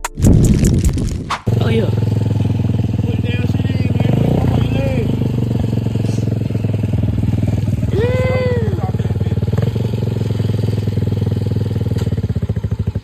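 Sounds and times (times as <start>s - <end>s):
dirt bike engine idling: 1.5s - 13.0s
person calling out: 7.9s - 9.0s.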